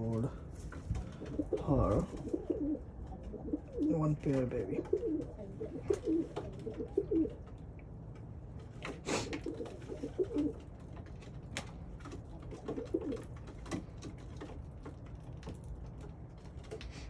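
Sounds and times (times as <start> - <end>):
pigeons cooing: 0.0 - 7.6, 8.8 - 10.8, 12.0 - 13.8.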